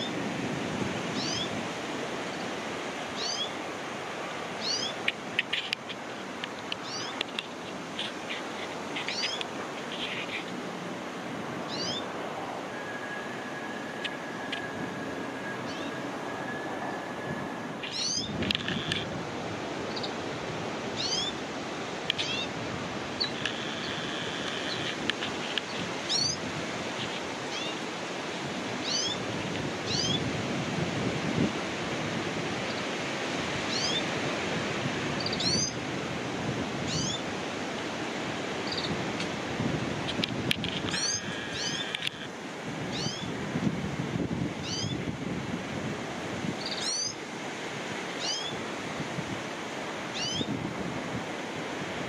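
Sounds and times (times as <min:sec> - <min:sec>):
small birds chirping: 0:03.2 - 0:03.6, 0:04.6 - 0:10.6, 0:11.7 - 0:12.1, 0:17.8 - 0:19.1, 0:19.9 - 0:20.2, 0:21.0 - 0:21.4, 0:22.1 - 0:22.5, 0:23.2 - 0:26.4, 0:28.8 - 0:29.2, 0:33.7 - 0:34.0, 0:35.2 - 0:35.8, 0:36.9 - 0:37.2, 0:38.6 - 0:39.0, 0:40.1 - 0:42.3, 0:42.9 - 0:43.3, 0:44.6 - 0:45.0, 0:46.6 - 0:47.2, 0:48.2 - 0:48.6, 0:50.2 - 0:50.5.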